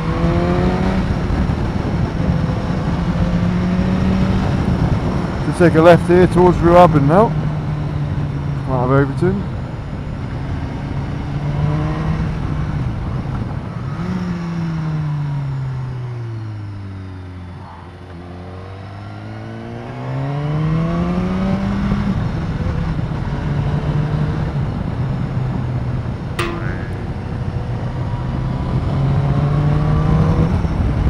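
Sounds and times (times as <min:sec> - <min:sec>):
short sharp click: 0:26.4 - 0:27.3.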